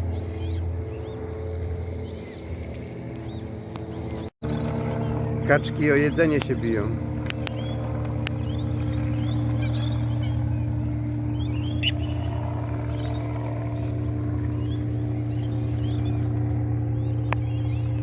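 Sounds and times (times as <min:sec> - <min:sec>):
birds chirping: 0:00.0 - 0:18.0
low mechanical hum: 0:00.0 - 0:18.0.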